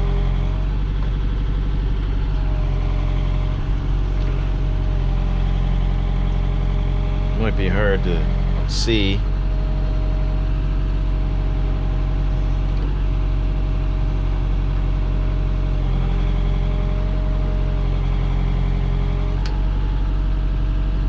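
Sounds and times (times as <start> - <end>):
diesel engine running: 0.0 - 21.0
faint whine: 7.3 - 9.4.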